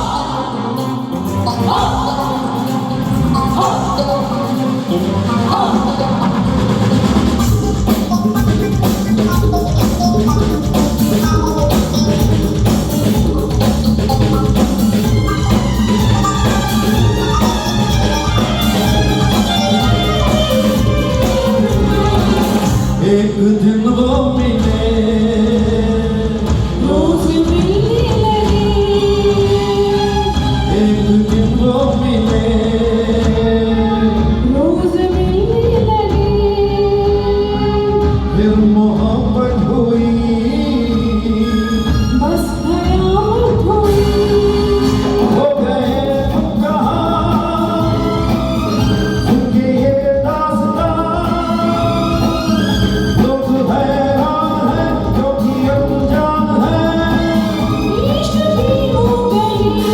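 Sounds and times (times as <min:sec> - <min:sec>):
person singing: 0:00.0 - 0:06.8, 0:07.4 - 0:59.9
steady music backing: 0:00.0 - 0:59.9
music with held melody: 0:13.8 - 0:23.1.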